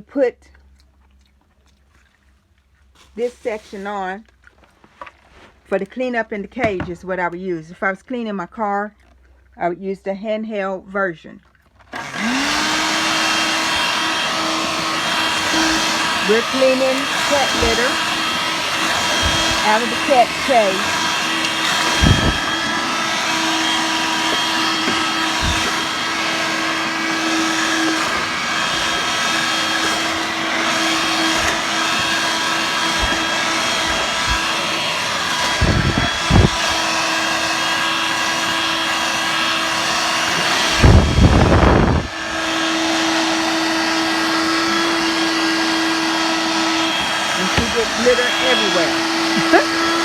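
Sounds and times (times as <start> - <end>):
vacuum sucking up litter: 3.0 - 4.2, 11.8 - 50.0
vacuum cleaner whining: 11.9 - 50.0.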